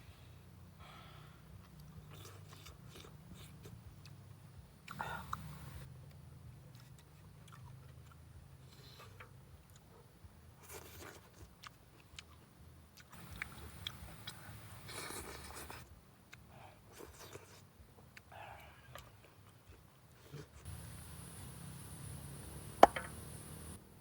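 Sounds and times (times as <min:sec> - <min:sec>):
person chewing: 0:01.6 - 0:04.2, 0:06.7 - 0:09.9, 0:10.6 - 0:18.3.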